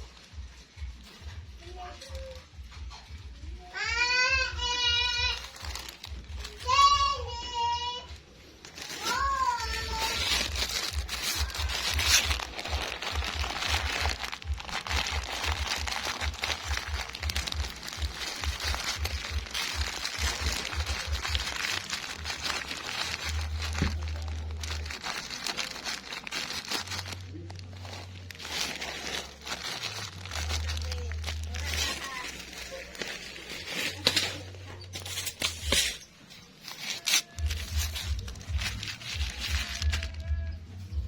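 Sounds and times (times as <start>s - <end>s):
pellets crackling and crunching: 3.8s - 41.0s.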